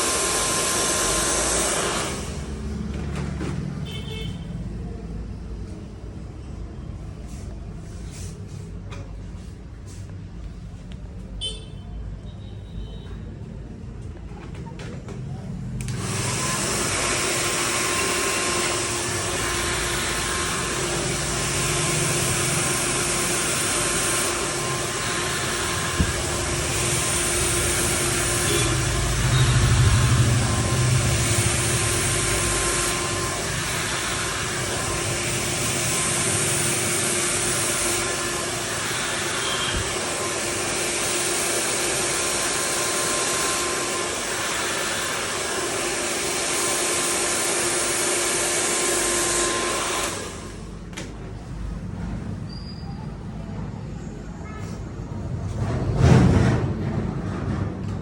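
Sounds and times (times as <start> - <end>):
hair dryer running: 0.0 - 3.1, 15.8 - 51.1.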